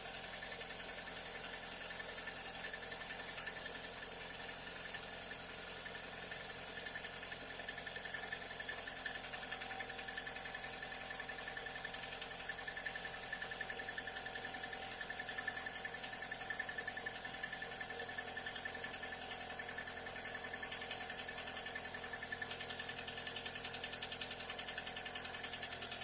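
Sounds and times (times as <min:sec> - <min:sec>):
engine idling: 0:00.0 - 0:26.0
fast regular engine knock: 0:00.1 - 0:26.0.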